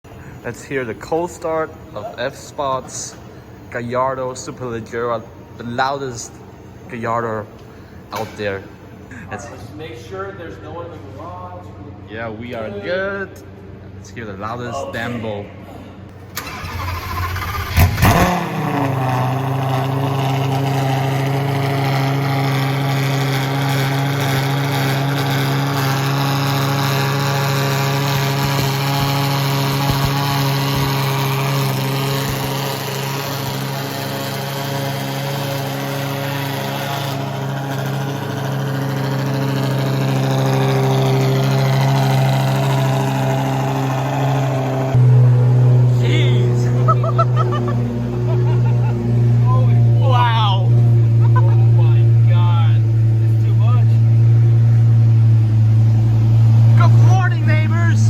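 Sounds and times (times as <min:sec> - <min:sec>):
car engine cold-starting and idling: 0:16.1 - 0:58.0.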